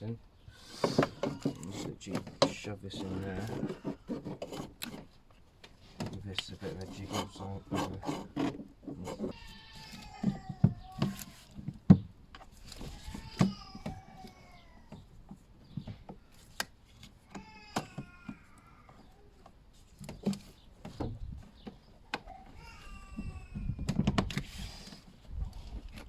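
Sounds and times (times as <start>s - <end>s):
plastic knocks and clicks: 23.6s - 24.5s.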